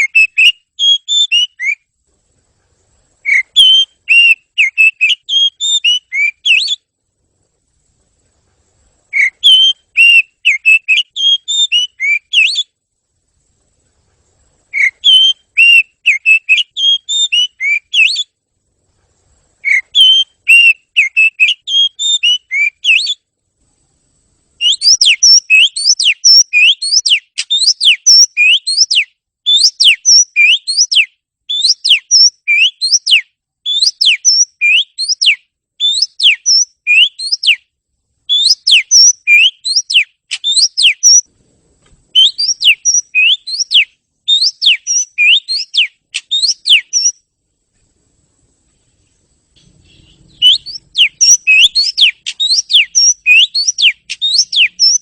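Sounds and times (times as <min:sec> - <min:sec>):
bird whistling song: 0:00.0 - 0:01.9, 0:03.2 - 0:06.9, 0:09.1 - 0:12.8, 0:14.7 - 0:18.4, 0:19.6 - 0:23.2, 0:24.6 - 0:37.7, 0:38.3 - 0:41.3, 0:42.1 - 0:47.2, 0:49.6 - 0:55.0.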